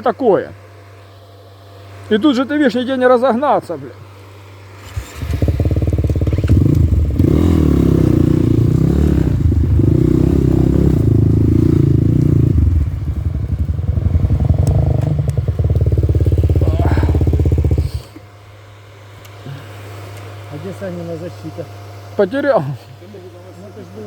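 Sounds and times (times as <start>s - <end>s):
motorcycle engine revving: 4.8s - 18.2s.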